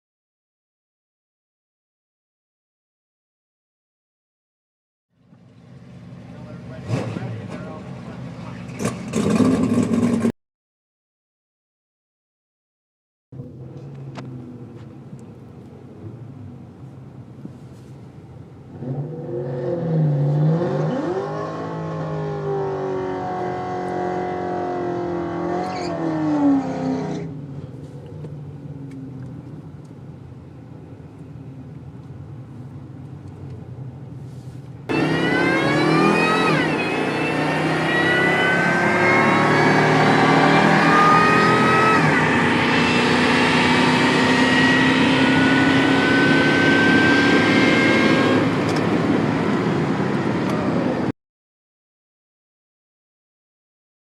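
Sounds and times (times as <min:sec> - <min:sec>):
pickup truck engine revving: 0:34.9 - 0:50.2.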